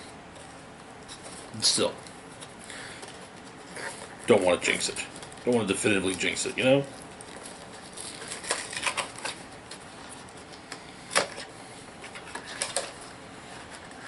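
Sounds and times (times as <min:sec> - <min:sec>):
plastic clicks and crinkles: 0:00.8 - 0:14.0.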